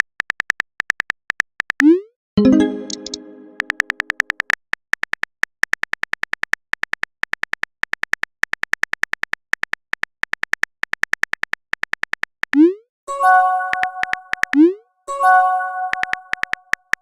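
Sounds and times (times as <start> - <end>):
electronic keyboard typing ticks: 0.0 - 17.0
multi-note chime: 2.4 - 3.7, 13.1 - 14.4, 15.1 - 16.4.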